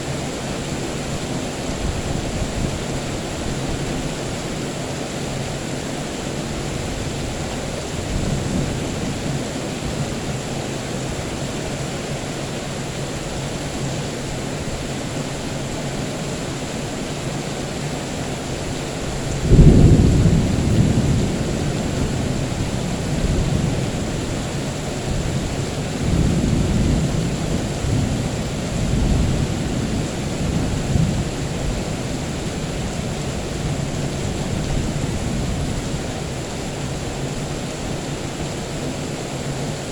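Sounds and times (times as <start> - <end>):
steady rain: 0.0 - 39.9
thunder rumbling: 19.2 - 36.7.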